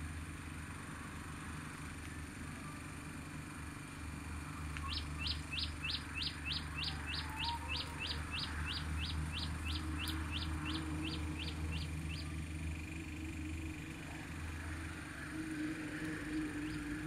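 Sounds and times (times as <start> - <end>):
bird calling high rising notes: 4.9 - 17.0.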